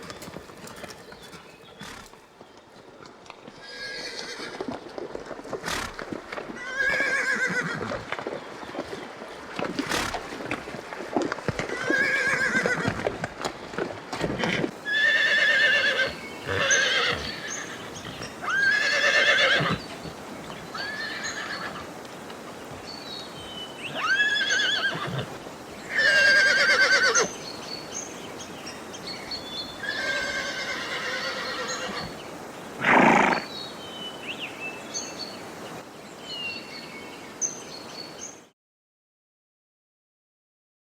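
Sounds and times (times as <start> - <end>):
horses whinnying: 3.5 - 4.8, 5.6 - 8.2, 9.7 - 13.3, 14.1 - 19.9, 20.7 - 21.9, 23.8 - 27.3, 29.8 - 32.2, 32.8 - 33.5.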